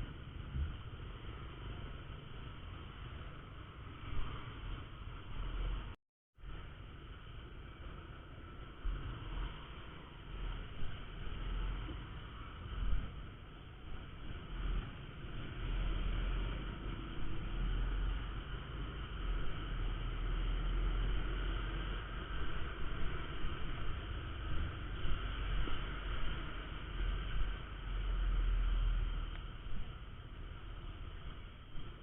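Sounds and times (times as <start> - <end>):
wind rumble on microphone: 0.0 - 32.0
motorcycle engine running: 6.7 - 32.0.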